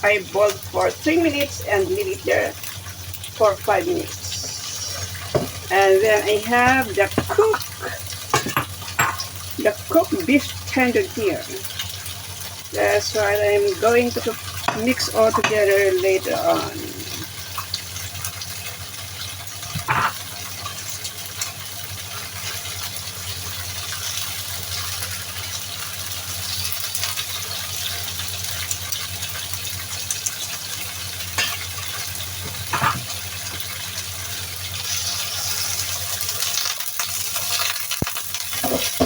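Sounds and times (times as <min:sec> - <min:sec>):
steady rushing hiss: 0:03.8 - 0:06.4.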